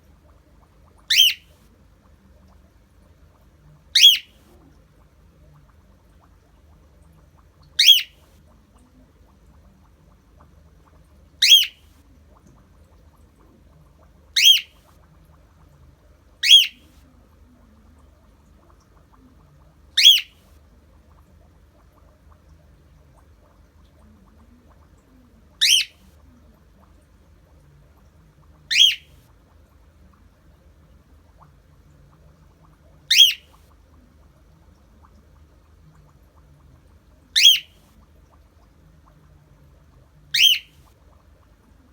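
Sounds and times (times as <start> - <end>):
cockatiel screeching: 1.1 - 1.4, 4.0 - 4.3, 7.8 - 8.1, 14.4 - 14.7, 16.4 - 16.8, 25.6 - 25.9, 33.1 - 33.4, 37.4 - 37.7, 40.4 - 40.7.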